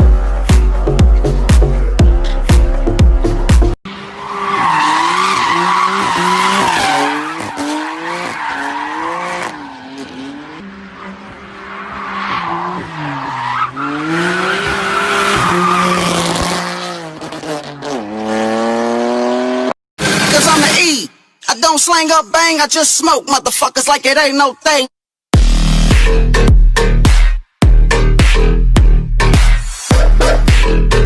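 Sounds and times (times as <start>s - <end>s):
car engine revving: 0.0s - 20.7s.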